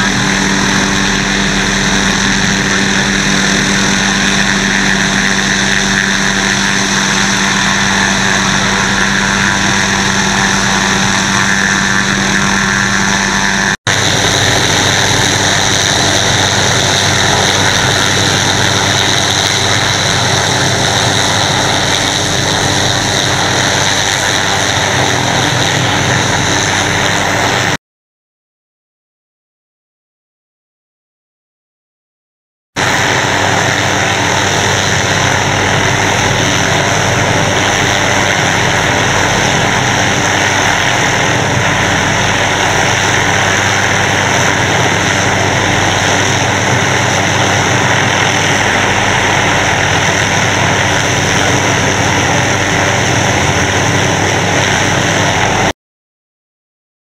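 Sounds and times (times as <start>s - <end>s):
helicopter engine and rotor: 0.0s - 27.8s, 32.8s - 55.8s.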